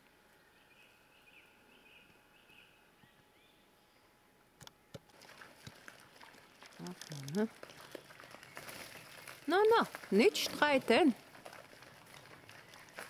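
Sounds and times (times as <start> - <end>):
distant bird chirps: 0.4 - 4.2.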